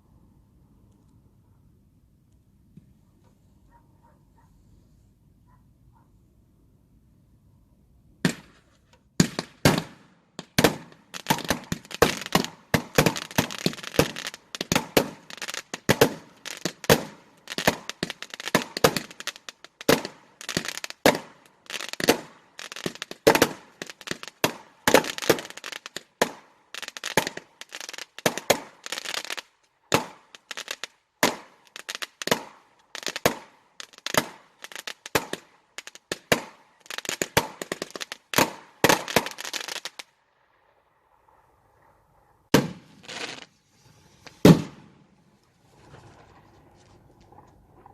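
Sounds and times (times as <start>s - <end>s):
fireworks bangs: 8.2s - 40.0s, 42.5s - 46.5s.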